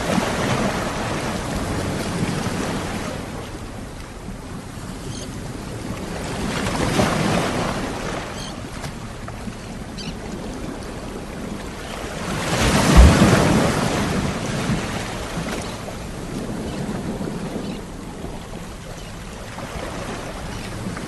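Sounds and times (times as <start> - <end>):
ocean waves breaking: 0.0 - 21.0
low thud of breaking wave: 12.7 - 14.2.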